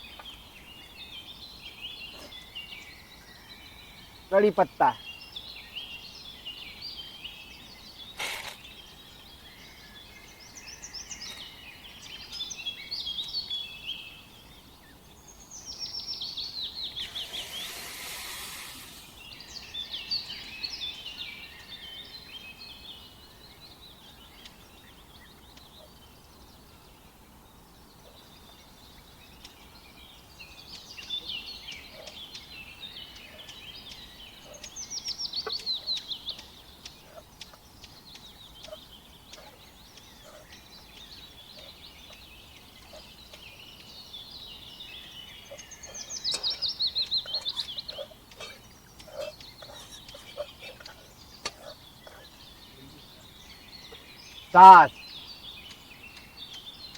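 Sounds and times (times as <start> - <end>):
birds chirping and calling: 0.0 - 56.9
hiss: 8.2 - 8.6, 17.0 - 19.4.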